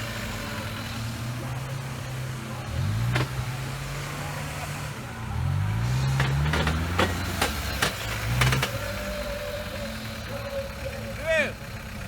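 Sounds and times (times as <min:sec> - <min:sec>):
off-road vehicle engine revving: 0:00.0 - 0:12.0
sharp knocks and clunks: 0:06.0 - 0:08.8.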